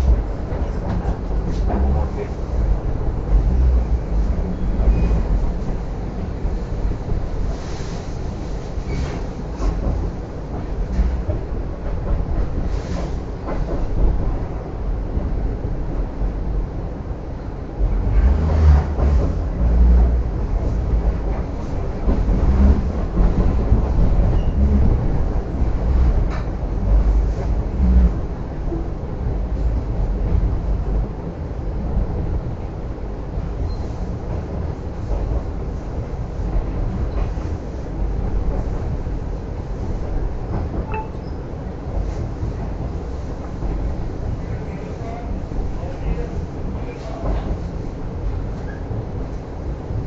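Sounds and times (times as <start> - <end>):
heavy knocks of train: 0.0 - 16.6, 17.8 - 32.7, 34.2 - 50.0
train rumbling on rails: 0.0 - 50.0
short squeak: 40.8 - 41.4.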